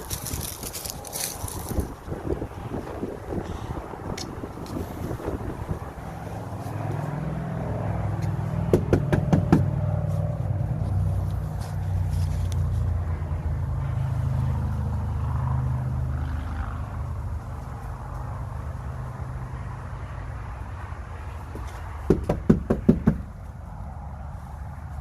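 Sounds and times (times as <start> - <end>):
knocking on door: 8.7 - 9.7, 22.1 - 23.3.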